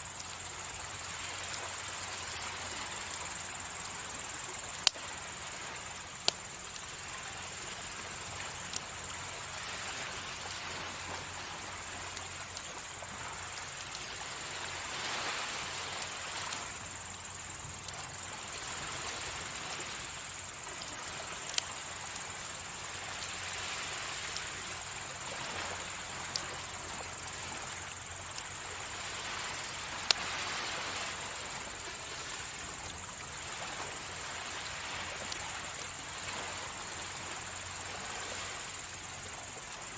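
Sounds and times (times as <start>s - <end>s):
wood fire crackling: 0.0s - 10.9s, 11.5s - 30.3s
sea waves washing ashore: 0.0s - 39.9s.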